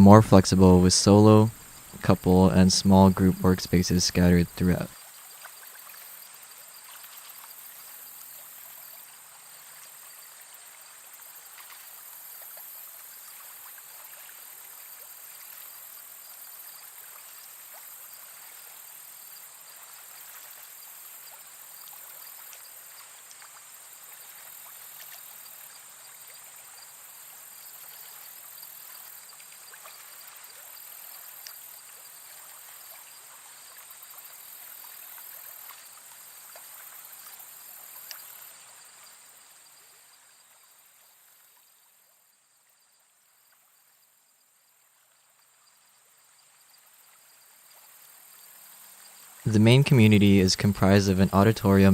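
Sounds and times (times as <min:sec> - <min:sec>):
faint trickling water: 0:00.0 - 0:51.8
insects chirring: 0:01.3 - 0:09.0, 0:09.9 - 0:42.1
small ticks: 0:27.8 - 0:31.8, 0:34.0 - 0:38.5.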